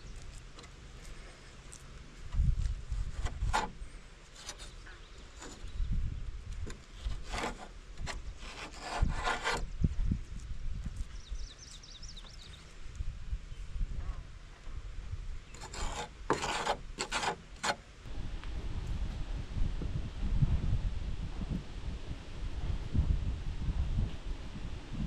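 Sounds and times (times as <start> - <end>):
scraping and rubbing on wood: 0.1 - 5.8, 6.5 - 9.8, 15.5 - 17.8.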